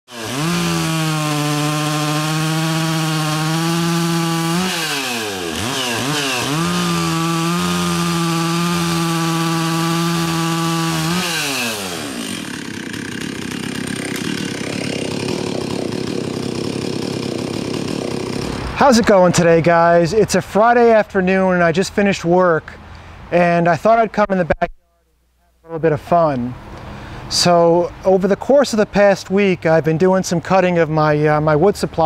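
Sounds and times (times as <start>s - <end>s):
chainsaw running at high revs: 0.1s - 18.9s
rough chainsaw idle: 0.1s - 18.9s.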